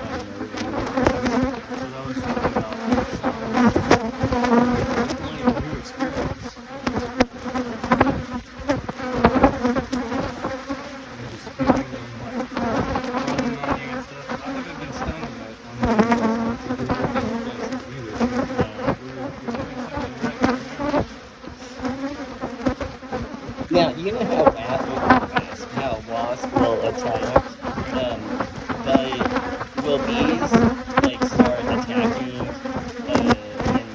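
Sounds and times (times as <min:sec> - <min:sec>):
bees buzzing: 0:00.0 - 0:33.9.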